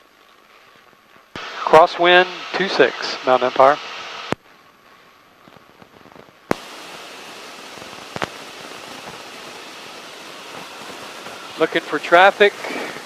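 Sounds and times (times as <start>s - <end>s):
headset intercom hiss: 1.4s - 4.4s, 6.5s - 13.0s.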